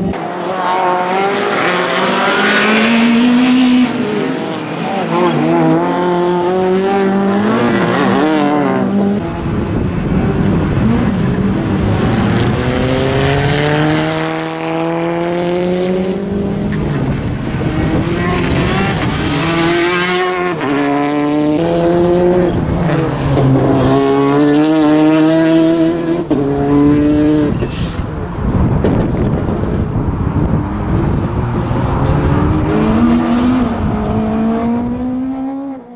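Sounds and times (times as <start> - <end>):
rally car engine revving: 0.0 - 35.9
tyre squeal: 26.4 - 28.2.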